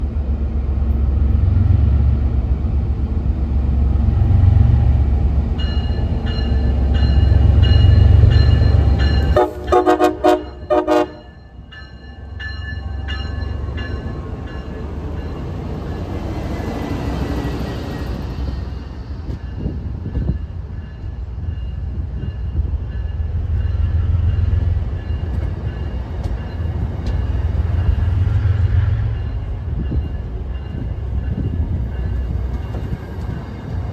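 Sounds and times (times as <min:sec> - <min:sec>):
diesel locomotive engine rumbling: 0:00.0 - 0:33.9
train horn blasts: 0:09.3 - 0:11.4.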